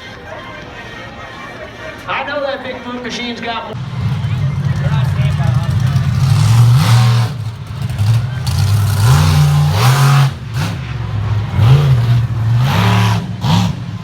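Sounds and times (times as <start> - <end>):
monster truck engine revving: 3.7 - 14.0.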